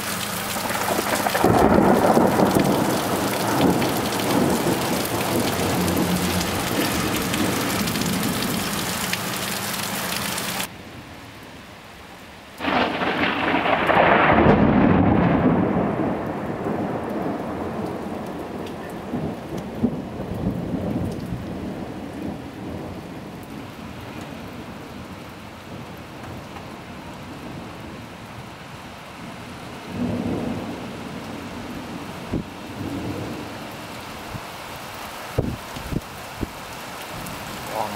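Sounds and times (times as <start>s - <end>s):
heavy rain: 0.0s - 37.9s
rolling thunder: 0.6s - 8.8s, 12.6s - 25.1s, 29.9s - 33.6s.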